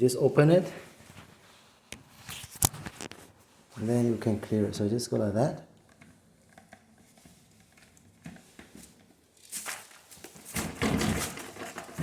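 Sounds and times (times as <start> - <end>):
plastic clattering and rustling: 2.2 - 3.4, 5.8 - 12.0.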